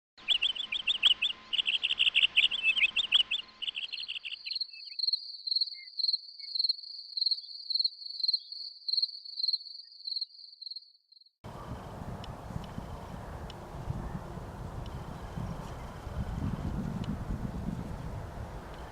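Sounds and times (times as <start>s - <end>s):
high-pitched chirping trills: 0.2s - 10.8s
wind-like outdoor noise: 11.4s - 18.9s.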